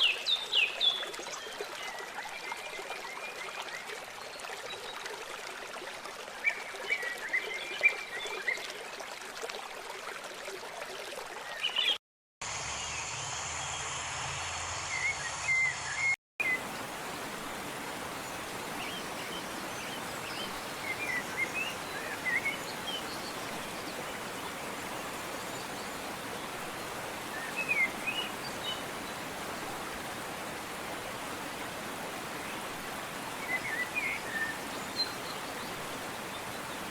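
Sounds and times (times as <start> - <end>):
running water rushing: 13.9 - 36.9
small birds chirping: 15.0 - 30.2.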